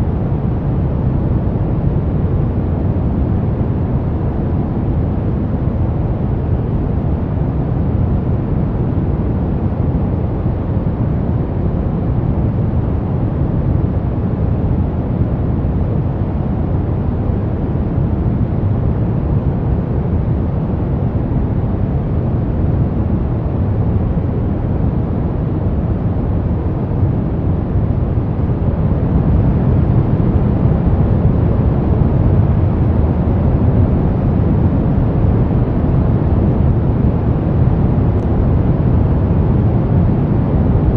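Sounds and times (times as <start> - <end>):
brown noise rumbling hiss: 0.0 - 40.9.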